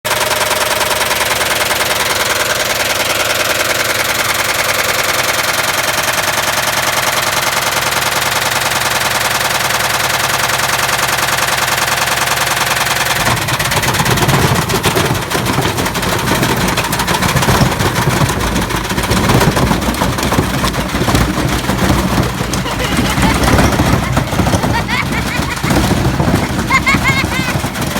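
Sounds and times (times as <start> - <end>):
brick rattling in spinning drum: 0.1 - 27.9
irregular banging and clattering: 10.2 - 27.9.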